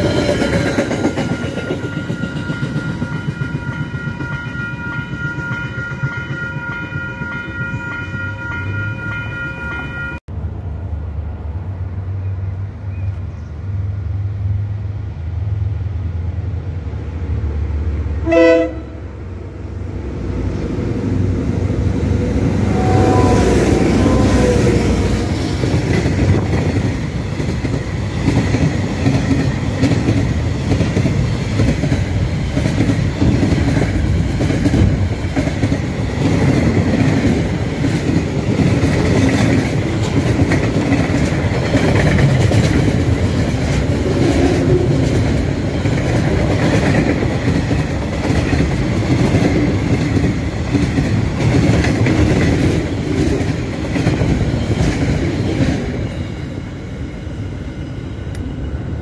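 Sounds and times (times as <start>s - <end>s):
freight train rolling past: 0.0s - 59.0s.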